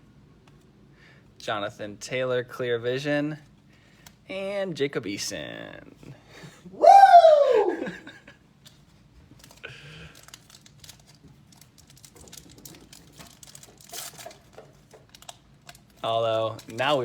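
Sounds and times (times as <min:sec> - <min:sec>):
man cheering woo: 0:06.7 - 0:08.1
cards rustling and clicking: 0:08.6 - 0:17.0
card pack wrapper crinkling: 0:09.4 - 0:17.0.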